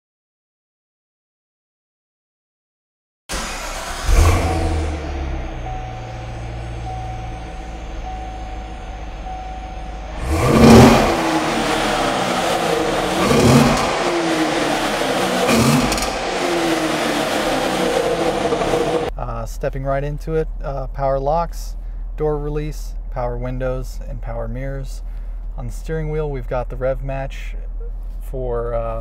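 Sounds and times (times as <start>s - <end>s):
car engine revving: 3.3s - 19.1s
car engine idling: 3.3s - 20.8s.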